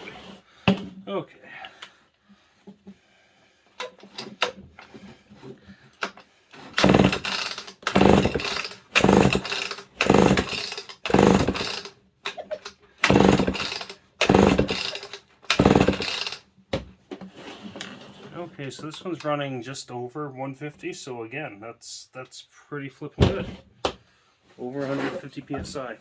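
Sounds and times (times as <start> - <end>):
chainsaw recoil starter pulls: 6.7 - 11.9, 12.6 - 16.4
engine turning over: 6.8 - 11.7, 13.0 - 16.4.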